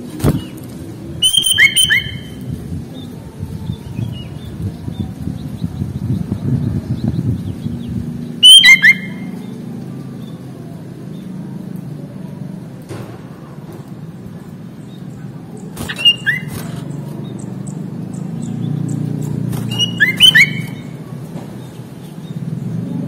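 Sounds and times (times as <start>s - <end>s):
bulbul chirping calls: 1.2s - 2.4s, 8.4s - 9.4s, 15.1s - 21.0s
steady low rumble: 2.2s - 8.5s.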